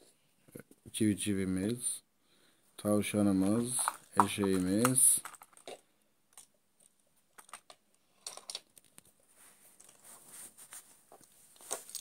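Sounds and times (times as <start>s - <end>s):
plastic toys clicking: 3.4s - 9.1s.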